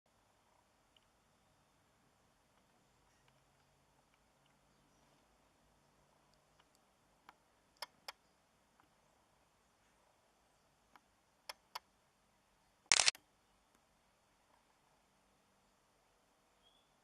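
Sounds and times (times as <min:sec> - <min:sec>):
brief rustle: 0:12.9 - 0:13.2
sharp clicks: 0:12.9 - 0:13.2.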